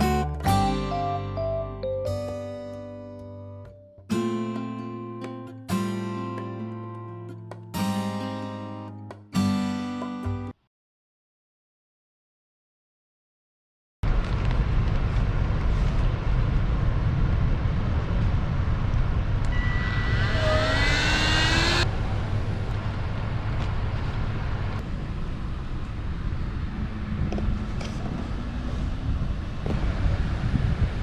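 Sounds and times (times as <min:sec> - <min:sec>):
jet airliner rumble overhead: 0:14.1 - 0:31.0
whining engine tones: 0:19.0 - 0:24.8
wind on microphone: 0:26.4 - 0:31.0.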